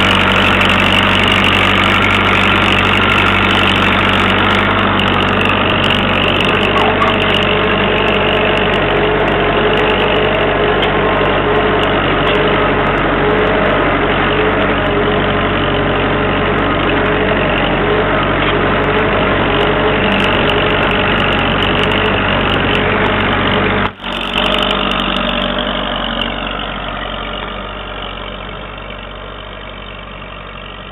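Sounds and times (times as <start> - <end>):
tractor engine running: 0.0 - 30.9.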